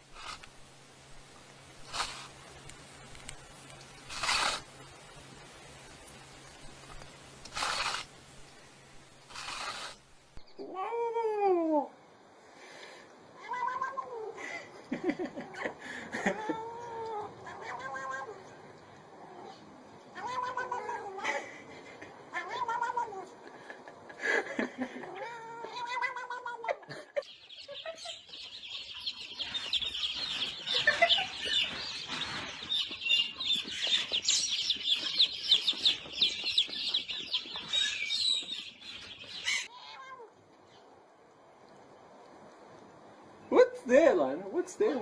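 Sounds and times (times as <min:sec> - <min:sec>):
cat meowing: 0:13.4 - 0:14.4, 0:16.3 - 0:18.5, 0:19.3 - 0:21.2, 0:22.3 - 0:23.4, 0:25.0 - 0:26.8, 0:39.7 - 0:40.4.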